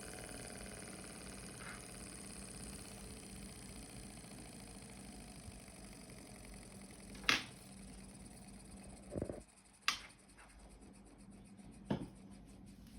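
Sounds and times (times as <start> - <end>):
small engine running rumble: 0.0 - 9.6
faint steady hum: 0.0 - 12.9.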